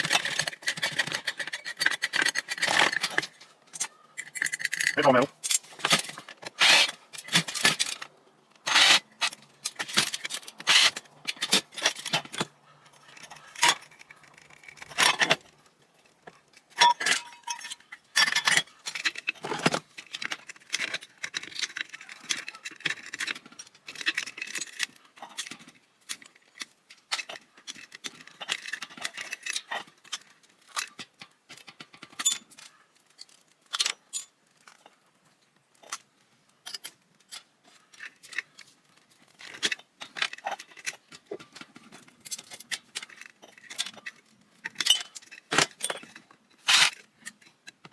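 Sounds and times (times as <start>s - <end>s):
metal parts clinking and scraping: 0.0s - 15.5s, 16.7s - 26.4s, 27.1s - 31.0s, 39.4s - 47.5s.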